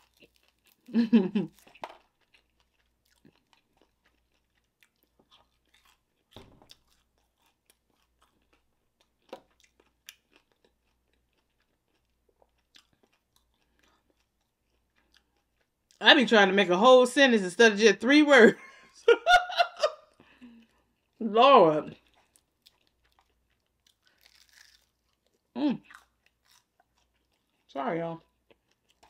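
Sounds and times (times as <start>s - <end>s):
chewing crunches: 0.0s - 0.9s, 1.5s - 16.0s, 21.9s - 29.0s.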